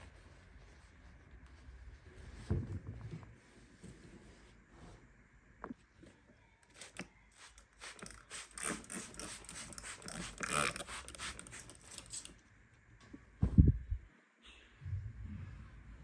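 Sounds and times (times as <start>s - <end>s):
low thump: 13.4s - 13.8s.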